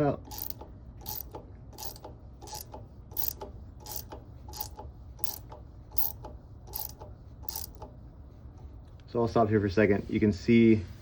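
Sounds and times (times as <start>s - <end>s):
ratchet wrench clicking: 0.2s - 7.9s.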